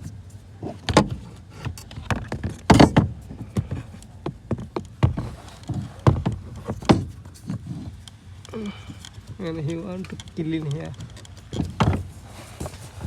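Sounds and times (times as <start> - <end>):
knocks and clicks of hand work: 0.7 - 8.2.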